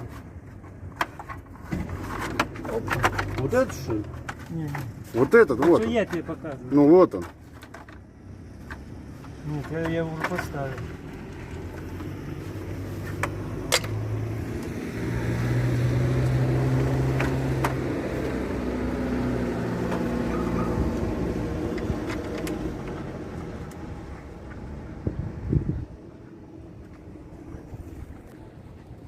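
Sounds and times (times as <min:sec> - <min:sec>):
vehicle engine passing: 0:08.3 - 0:28.9.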